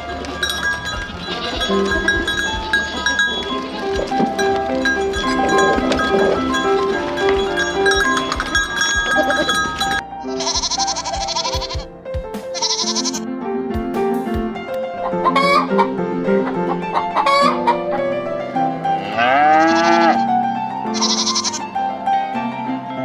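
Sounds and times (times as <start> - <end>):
background music: 0.0 - 23.0
goat bleating: 0.5 - 11.9, 12.6 - 13.2, 19.0 - 20.3, 20.9 - 21.6.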